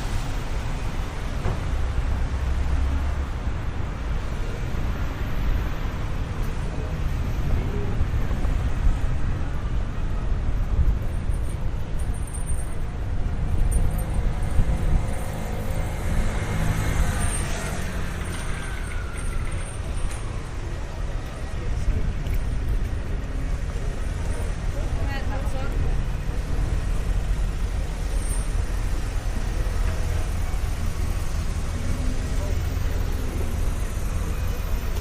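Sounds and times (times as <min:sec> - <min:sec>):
traffic rumble: 0:00.0 - 0:35.0
vehicle engine drone: 0:00.0 - 0:35.0
wind buffeting microphone: 0:12.8 - 0:17.2.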